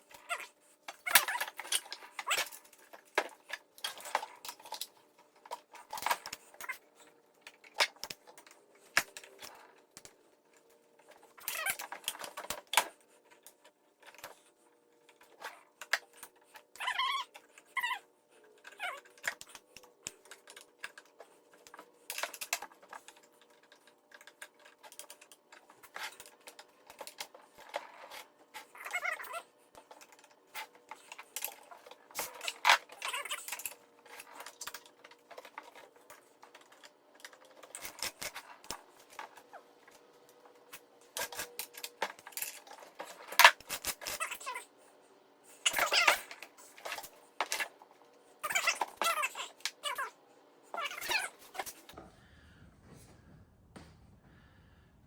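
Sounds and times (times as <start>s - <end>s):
metal parts clicking and clattering: 0.2s - 6.8s, 18.5s - 44.6s.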